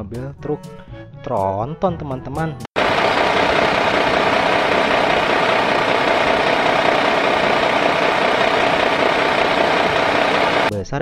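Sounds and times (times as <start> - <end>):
truck diesel engine running: 2.8 - 10.7.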